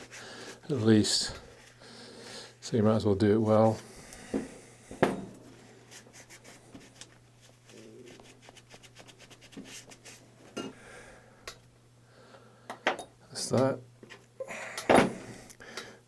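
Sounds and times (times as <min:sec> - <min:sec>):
soft rubbing: 0:05.4 - 0:10.4.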